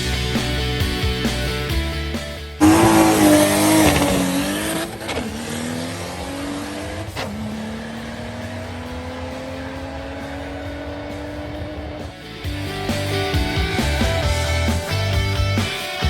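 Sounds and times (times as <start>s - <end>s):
car engine accelerating hard: 2.6s - 12.3s.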